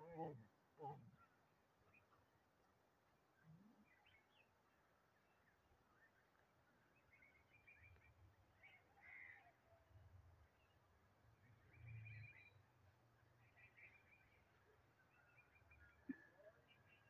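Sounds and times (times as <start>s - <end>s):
faint bird chirps: 3.3s - 10.8s, 11.4s - 17.0s.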